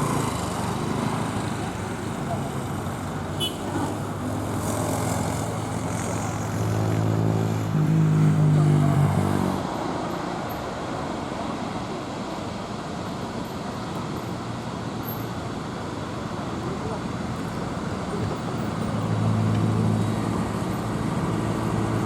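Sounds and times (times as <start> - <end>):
steady traffic noise: 0.0 - 22.0.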